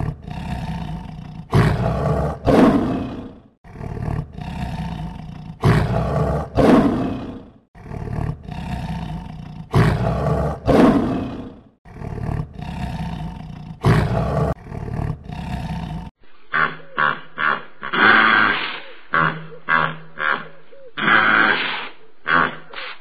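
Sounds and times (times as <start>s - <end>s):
lion roaring: 0.0s - 16.2s.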